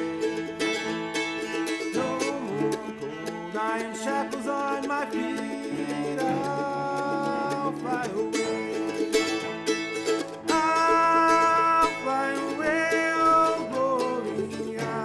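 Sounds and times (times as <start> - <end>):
bluegrass string-band music: 0.0 - 15.0.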